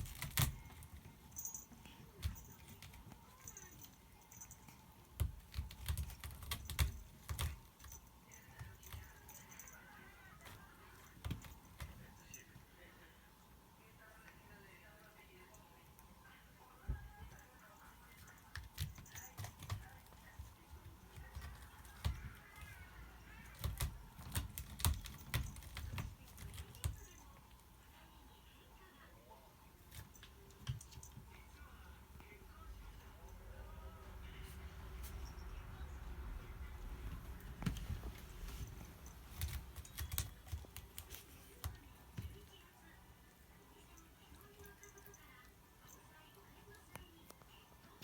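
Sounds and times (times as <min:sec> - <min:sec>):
cat scratching claws: 0:00.0 - 0:12.6, 0:17.2 - 0:27.7, 0:36.9 - 0:42.6.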